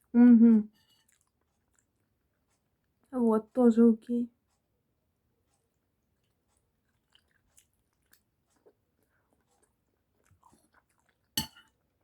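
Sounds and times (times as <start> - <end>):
person chewing food: 0.7 - 3.1, 5.4 - 12.0.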